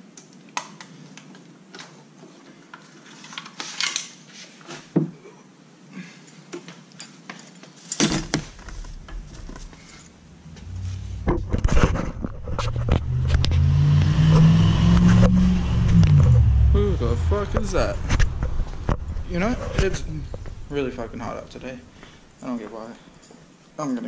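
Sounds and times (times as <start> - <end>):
vehicle engine approaching: 8.8 - 22.4.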